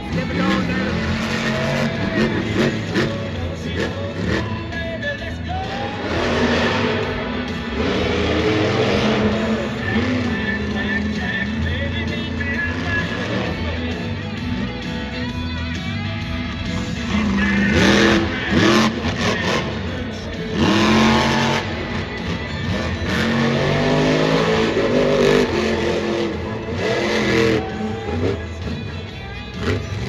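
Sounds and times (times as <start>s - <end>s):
loud arena music: 0.0s - 30.0s
truck engine revving hard: 0.0s - 30.0s.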